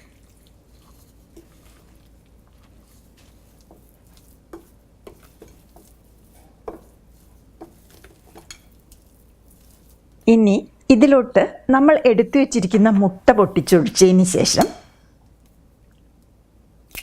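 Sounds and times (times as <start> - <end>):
soft squelches of mixing chicken: 0.0 - 10.3.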